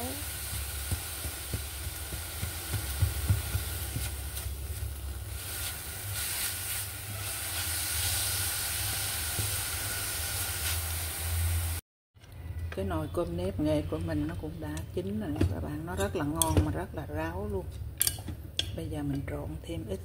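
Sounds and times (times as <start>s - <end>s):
coconut sizzling in frying pan: 0.0s - 11.8s.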